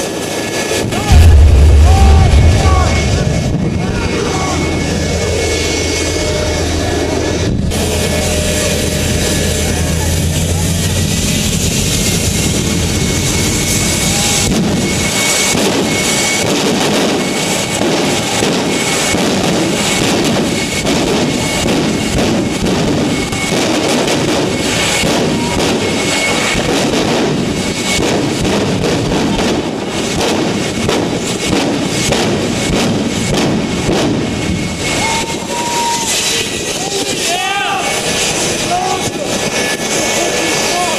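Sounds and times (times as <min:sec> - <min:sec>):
jet engine roaring: 0:00.0 - 0:40.9
dense crackle: 0:01.1 - 0:10.6.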